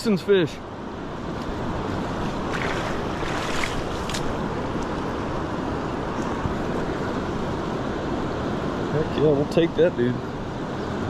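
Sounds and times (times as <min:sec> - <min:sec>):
river water rushing: 0:00.6 - 0:08.9.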